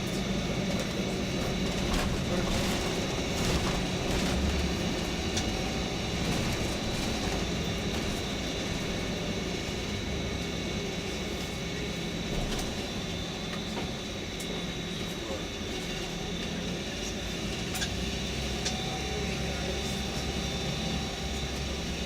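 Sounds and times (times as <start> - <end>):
bus engine and road hum: 0.0 - 10.0.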